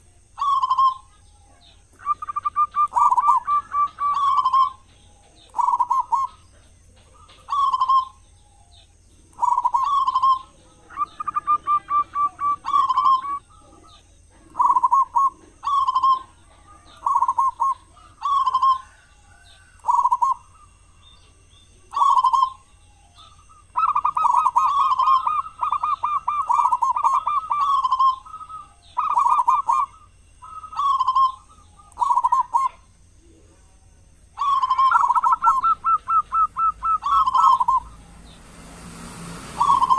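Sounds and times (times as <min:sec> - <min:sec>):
dove cooing: 0:00.0 - 0:33.6, 0:34.2 - 0:38.6, 0:39.2 - 0:39.9
faint high chirps: 0:00.0 - 0:38.7.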